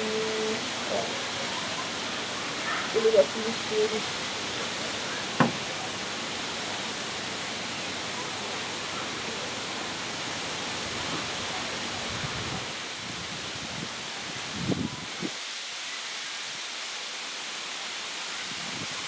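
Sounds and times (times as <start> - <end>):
rain falling: 0.0 - 19.0
sharp knock: 5.4 - 5.6.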